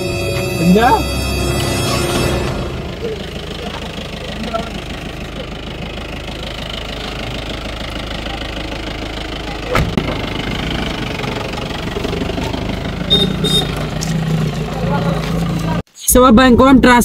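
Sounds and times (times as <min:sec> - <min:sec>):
car engine idling: 0:00.0 - 0:15.8
car door thudding shut: 0:09.7 - 0:10.2.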